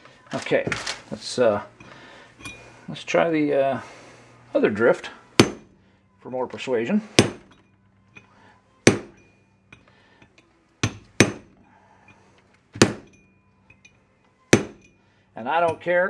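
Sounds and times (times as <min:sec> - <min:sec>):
hammer striking steel drift: 0:05.4 - 0:05.8, 0:07.1 - 0:12.2, 0:12.8 - 0:15.1.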